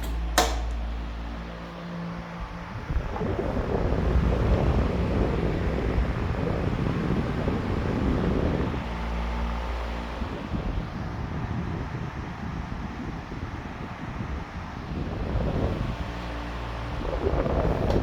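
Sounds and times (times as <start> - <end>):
sharp click: 0.0 - 0.8
electric fan motor hum: 0.0 - 18.0
wind buffeting microphone: 0.0 - 18.0.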